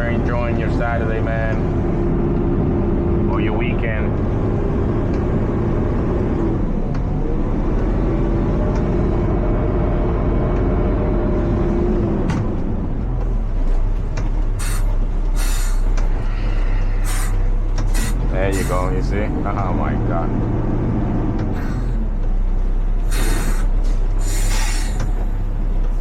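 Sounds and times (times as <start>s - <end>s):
hydraulic whine: 0.0s - 20.4s, 21.2s - 26.0s
garbage truck diesel engine: 0.0s - 26.0s
air hiss bursts: 23.1s - 25.2s.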